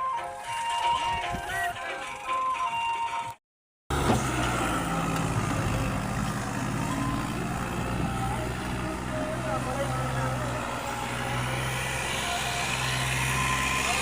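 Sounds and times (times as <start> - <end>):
music: 0.0 - 3.4
tractor diesel engine running: 3.9 - 14.0.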